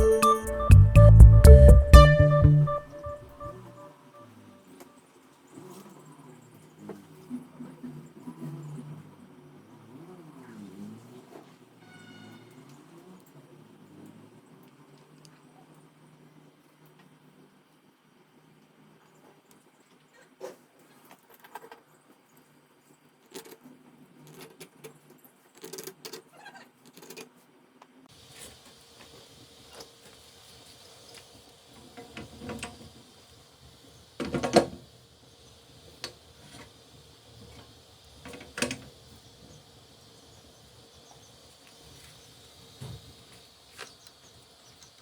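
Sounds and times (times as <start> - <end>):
faint steady hiss: 27.5 - 45.0.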